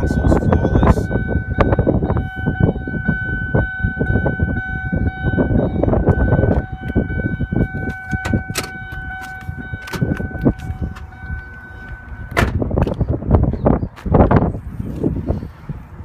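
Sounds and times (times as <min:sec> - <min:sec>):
steady high-pitched tone: 0:00.0 - 0:12.6
rumbling handling noise: 0:05.7 - 0:15.3.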